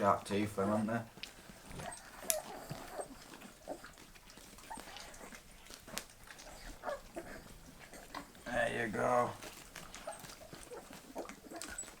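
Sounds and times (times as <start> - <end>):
puppies chewing and licking: 0.0 - 12.0
puppy squeaks: 1.7 - 5.4, 10.1 - 12.0.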